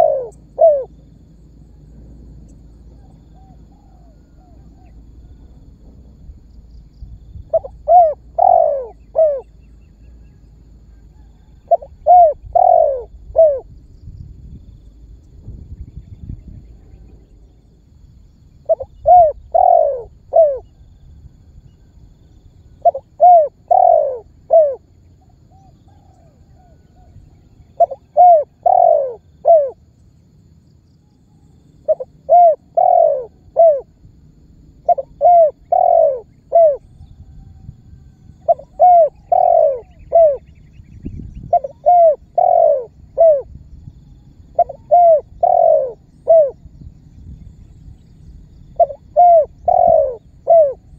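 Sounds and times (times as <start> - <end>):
dove cooing: 0.0 - 1.2, 7.4 - 13.8, 18.6 - 20.8, 22.7 - 29.8, 31.8 - 34.0, 34.8 - 46.7, 48.7 - 50.9
faint dove call: 0.0 - 5.8, 7.4 - 13.8, 18.6 - 29.8, 31.0 - 34.0, 34.8 - 47.0, 47.6 - 50.9.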